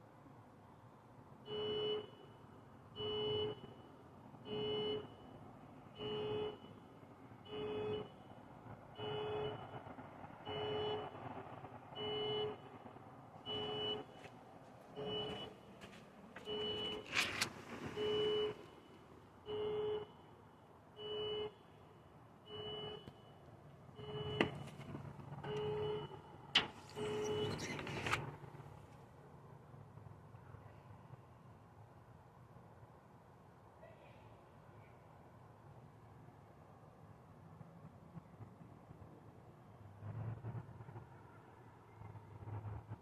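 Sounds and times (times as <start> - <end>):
reversing alarm beeps: 15.0 - 15.6, 16.4 - 17.2, 22.5 - 24.8.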